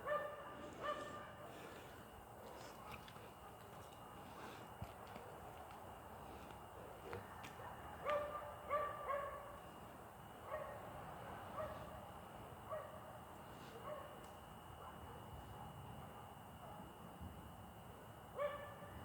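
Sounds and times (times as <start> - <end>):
dog barking: 0.0 - 1.8, 7.0 - 9.6, 10.4 - 12.0, 12.7 - 14.2, 14.8 - 16.9, 18.4 - 19.0.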